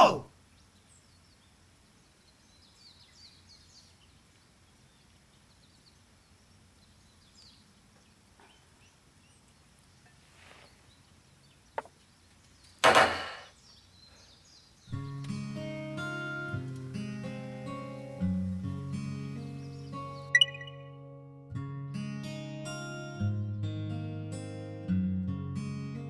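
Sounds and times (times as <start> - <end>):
faint bird chirps: 0.0 - 15.0, 19.4 - 21.0.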